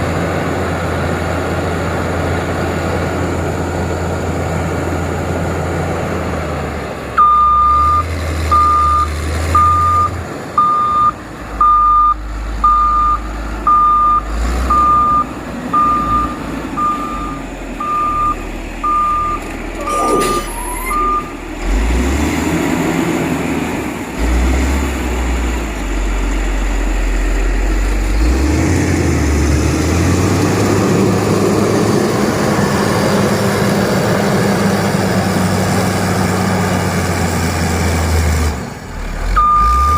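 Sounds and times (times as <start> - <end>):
diesel engine rumbling: 0.0 - 39.9
reverse alarm beeping: 7.2 - 21.3, 39.4 - 39.9.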